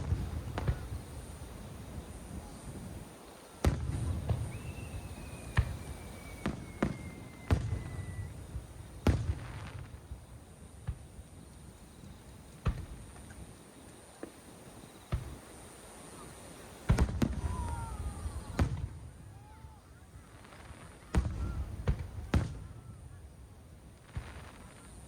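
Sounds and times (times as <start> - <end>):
falling firework whistle: 0.0 - 1.3, 3.5 - 10.0, 14.2 - 23.2.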